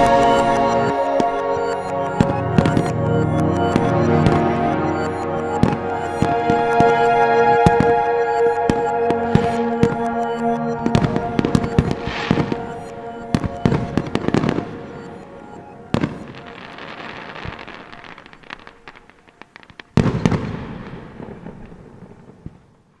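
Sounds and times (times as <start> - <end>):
music: 0.0 - 18.6
fireworks bangs and crackling: 15.9 - 22.8.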